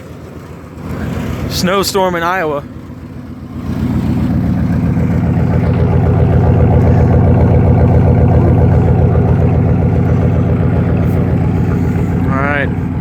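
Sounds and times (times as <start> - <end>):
loud straight-piped truck engine running: 0.0 - 13.0.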